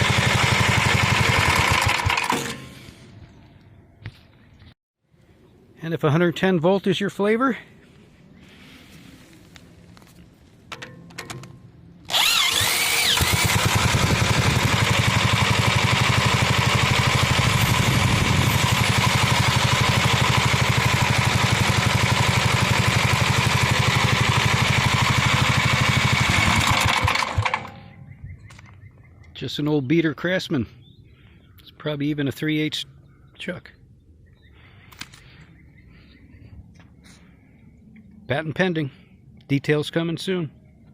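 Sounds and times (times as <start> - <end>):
tractor engine running: 0.0 - 3.0, 9.5 - 28.9
electric drill whining: 12.1 - 15.6.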